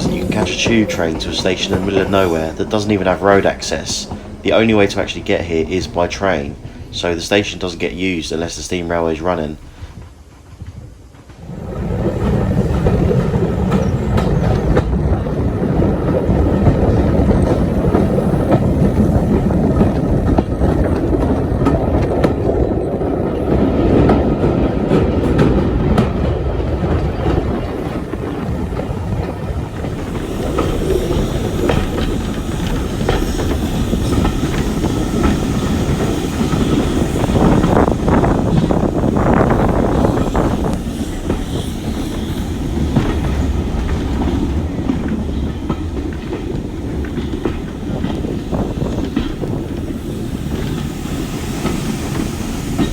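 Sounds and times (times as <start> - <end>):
high hiss: 0.0 - 10.5, 27.4 - 52.9
train wheels clattering on rails: 0.0 - 52.9.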